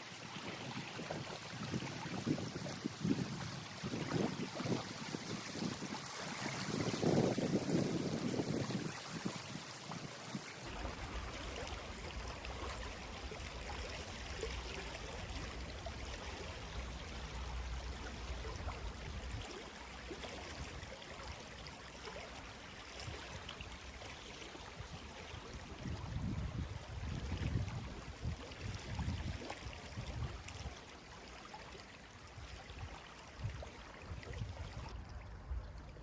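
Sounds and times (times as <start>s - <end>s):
water rushing: 0.0s - 24.0s.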